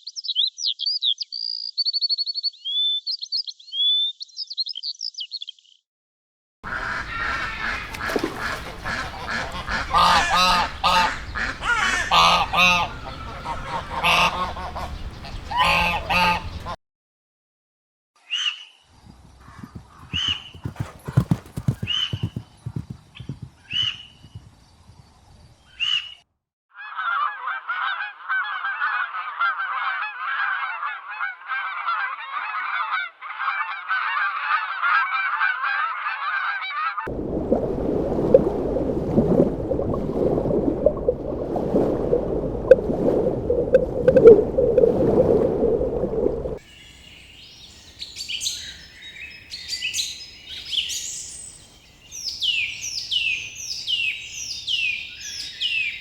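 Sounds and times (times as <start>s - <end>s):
geese honking: 6.7s - 16.8s.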